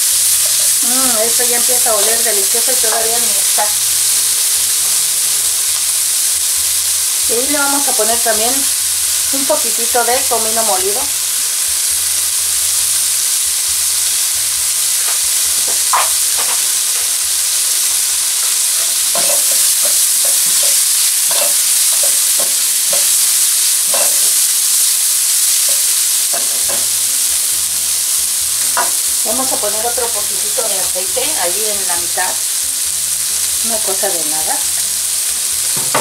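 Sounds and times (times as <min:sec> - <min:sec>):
vegetables sizzling in a frying pan: 0:00.0 - 0:36.0
spoon scraping and tapping a pan: 0:15.1 - 0:16.7, 0:18.4 - 0:23.2, 0:23.9 - 0:24.3, 0:25.7 - 0:27.0.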